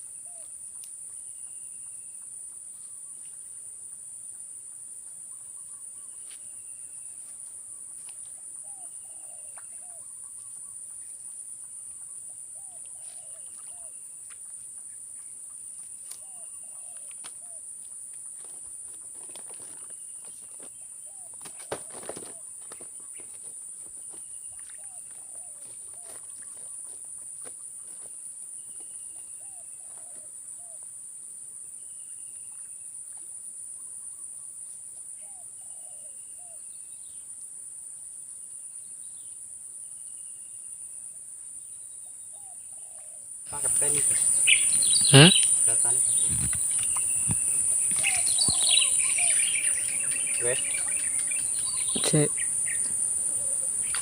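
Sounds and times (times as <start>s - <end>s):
insect drone: 0.0s - 54.0s
short bird calls: 42.8s - 54.0s.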